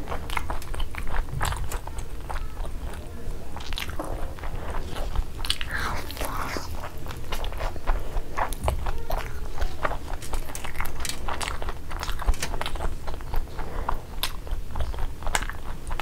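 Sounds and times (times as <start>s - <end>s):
wet chewing with small crunches: 0.0s - 16.0s.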